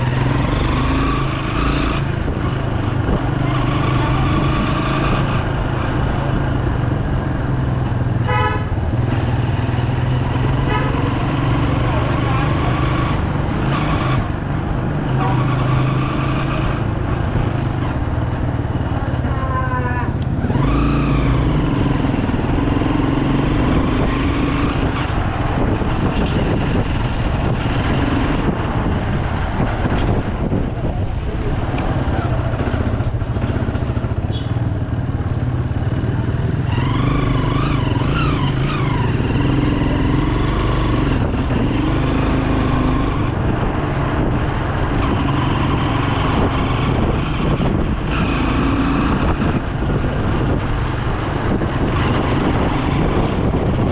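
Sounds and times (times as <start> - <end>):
motorcycle engine running: 16.5 - 53.9.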